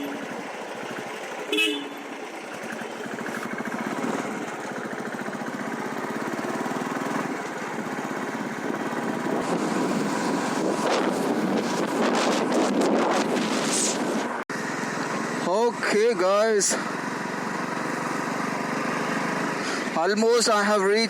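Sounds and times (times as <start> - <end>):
vehicle horn toot: 0.0 - 0.3, 1.5 - 2.2
motorcycle engine running: 0.0 - 21.0
wind noise: 8.6 - 14.4.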